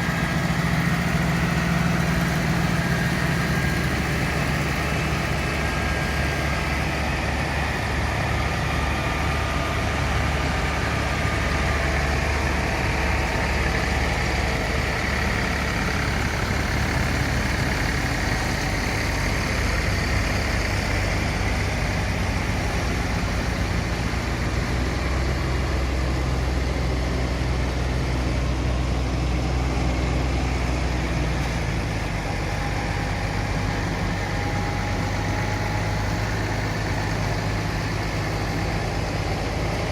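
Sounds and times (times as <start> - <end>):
engine running low hum: 0.0 - 39.9.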